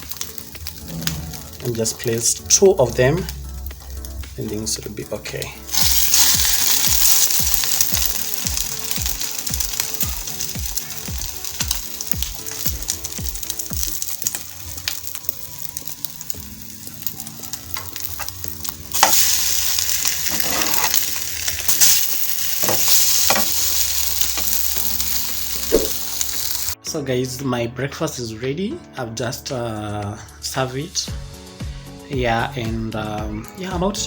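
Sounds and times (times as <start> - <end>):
bread sizzling in hot oil: 0.0 - 4.2, 5.6 - 26.8
soft background music: 0.0 - 34.0.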